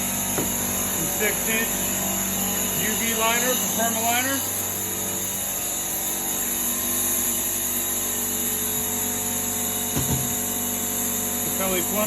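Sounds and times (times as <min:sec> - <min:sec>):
machinery drone with high hiss: 0:00.6 - 0:07.3.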